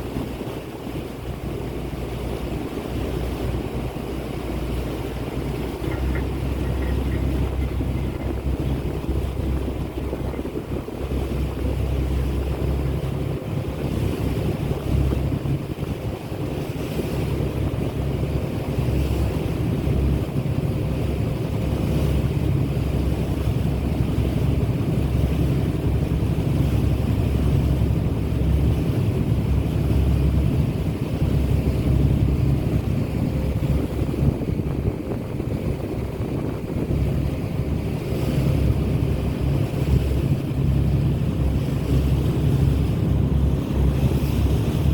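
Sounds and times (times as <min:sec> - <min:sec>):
boat engine drone: 0:00.0 - 0:44.9
rushing water: 0:00.0 - 0:44.9
wind buffeting microphone: 0:00.0 - 0:44.9.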